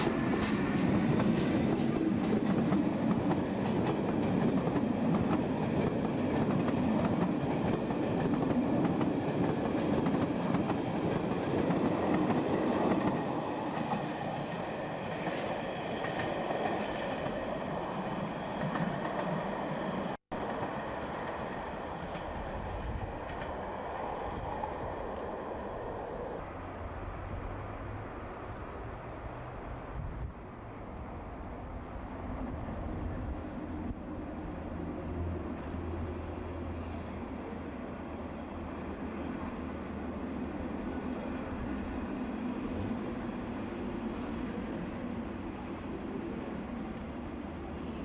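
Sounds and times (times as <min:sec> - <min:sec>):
train wheels rumbling and clattering: 0:00.0 - 0:25.4.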